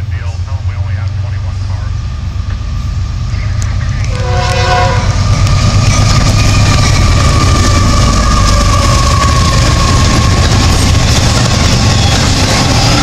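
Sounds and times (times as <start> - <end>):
locomotive engine rumble: 0.0 - 13.0
train horn: 4.0 - 5.2
wheels on rails: 4.5 - 13.0.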